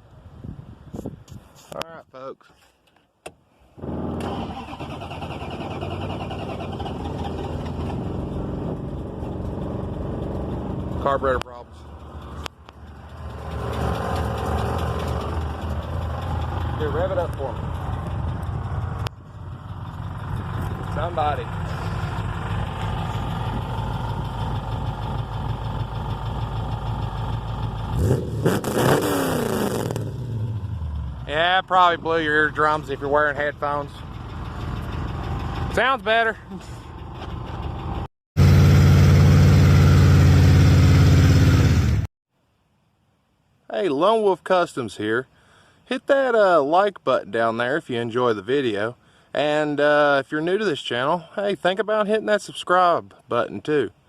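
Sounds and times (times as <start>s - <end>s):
car engine idling: 3.8s - 28.2s, 30.4s - 41.9s
car engine revving: 3.8s - 35.8s, 38.4s - 42.0s.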